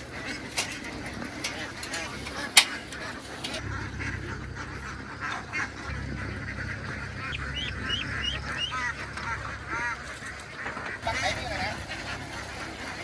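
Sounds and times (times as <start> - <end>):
ducks quacking: 0.0 - 13.0
steady low hum: 0.0 - 13.0.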